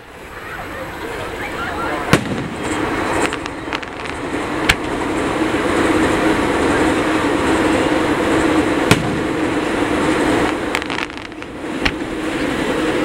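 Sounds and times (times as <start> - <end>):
steady background rumble: 0.0 - 13.0
firework bang: 2.1 - 5.0, 8.8 - 12.2.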